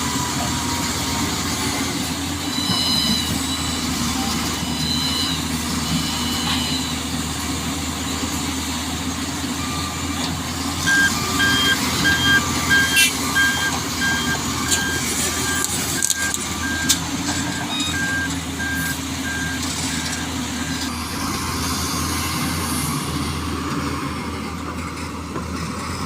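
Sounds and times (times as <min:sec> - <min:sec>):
truck engine running: 0:00.0 - 0:26.0
reversing alarm beeping: 0:02.4 - 0:07.1, 0:10.8 - 0:20.9.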